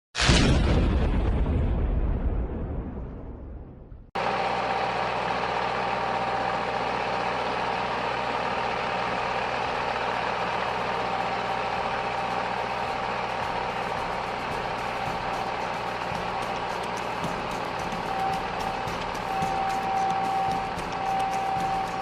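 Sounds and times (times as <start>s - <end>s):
boom: 0.2s - 4.1s
heavy machine engine humming: 4.2s - 22.0s.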